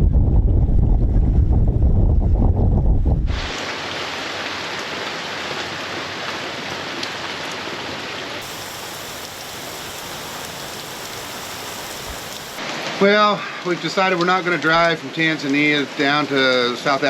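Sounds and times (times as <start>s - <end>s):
steady rain falling: 3.3s - 17.0s
raindrop ticks: 8.4s - 12.6s.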